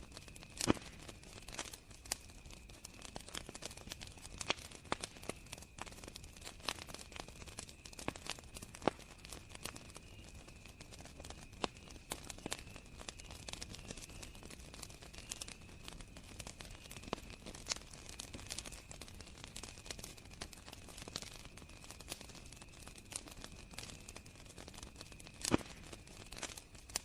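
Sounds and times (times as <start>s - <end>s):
campfire crackling: 0.0s - 27.0s
crickets chirping: 0.1s - 19.2s.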